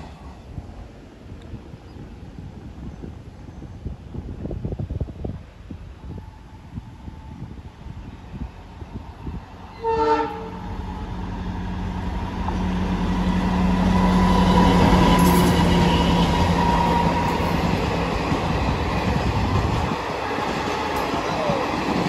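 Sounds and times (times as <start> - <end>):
train wheels on rails: 6.0 - 22.0
train horn blast: 9.7 - 11.1, 13.9 - 17.6.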